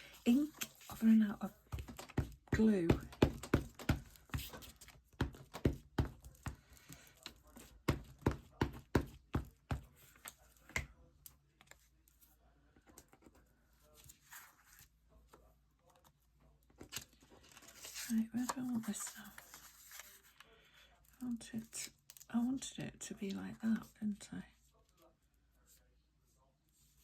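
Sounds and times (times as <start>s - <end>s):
craft tools tapping on desk: 1.7s - 4.6s.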